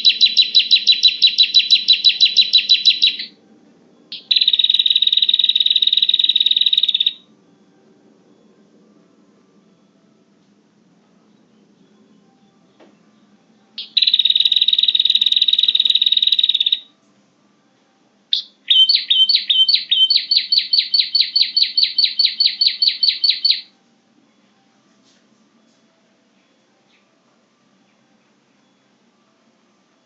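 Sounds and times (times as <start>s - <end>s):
bird sharp repeated notes: 0.0s - 3.4s, 4.1s - 7.2s, 13.8s - 16.9s, 18.4s - 23.7s.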